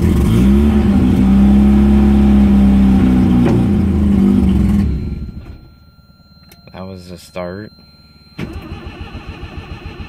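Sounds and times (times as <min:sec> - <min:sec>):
rotary engine starting and running: 0:08.4 - 0:10.0.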